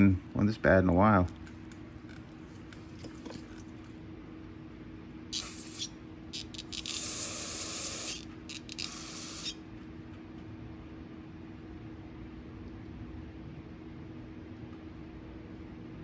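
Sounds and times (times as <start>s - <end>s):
aerosol spray hissing: 5.4s - 9.6s.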